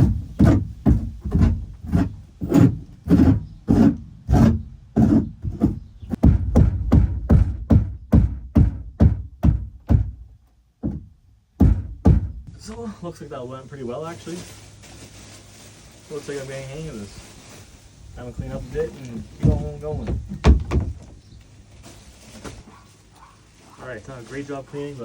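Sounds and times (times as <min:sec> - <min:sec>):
hammer pounding wood: 0:00.0 - 0:12.5, 0:19.4 - 0:21.2.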